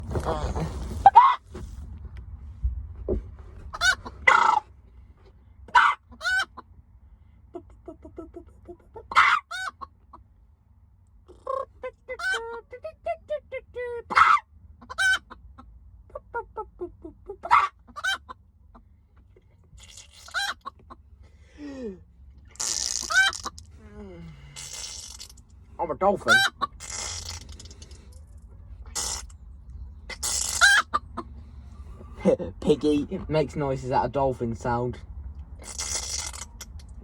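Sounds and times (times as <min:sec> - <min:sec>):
chicken squawking: 0:00.4 - 0:01.4, 0:03.7 - 0:04.7, 0:05.7 - 0:06.6, 0:07.6 - 0:09.9, 0:11.3 - 0:12.9, 0:14.1 - 0:18.4, 0:19.8 - 0:21.0, 0:22.6 - 0:23.6, 0:26.2 - 0:27.8, 0:30.1 - 0:31.3
chicken clucking: 0:03.7 - 0:04.6, 0:05.7 - 0:06.6, 0:07.6 - 0:09.9, 0:11.3 - 0:12.9, 0:14.1 - 0:18.8, 0:20.3 - 0:21.0, 0:26.3 - 0:26.8.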